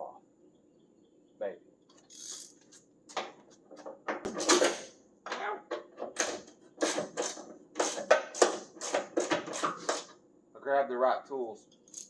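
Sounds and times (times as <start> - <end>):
hand tools and metal parts clinking: 2.0 - 10.1.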